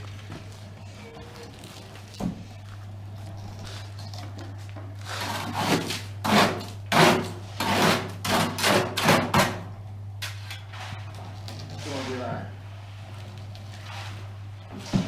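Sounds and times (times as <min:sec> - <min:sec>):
hand tool scraping screed: 0:05.0 - 0:09.4.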